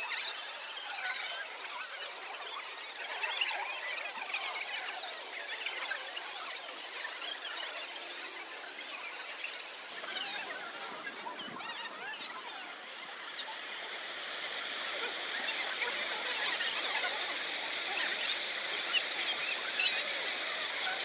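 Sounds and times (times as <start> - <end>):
waterfall rushing: 12.0 - 21.0.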